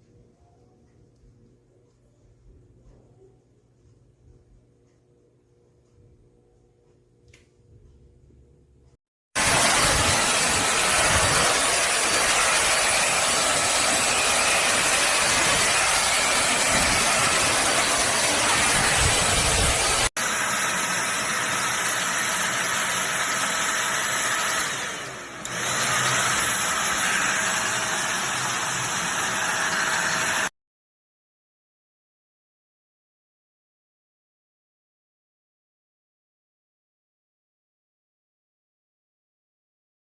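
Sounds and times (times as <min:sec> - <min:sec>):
handheld vacuum cleaner running: 0:09.4 - 0:30.5.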